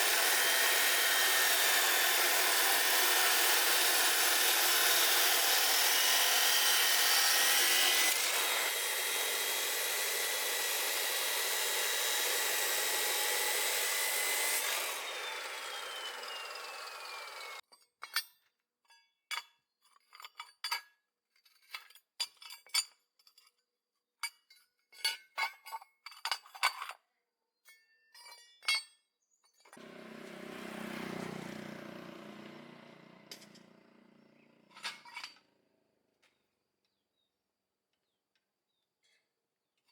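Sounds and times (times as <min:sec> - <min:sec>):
power tool cutting: 0:00.0 - 0:17.6, 0:29.8 - 0:35.4
power tool spinning down whine: 0:00.0 - 0:17.6, 0:29.8 - 0:35.0.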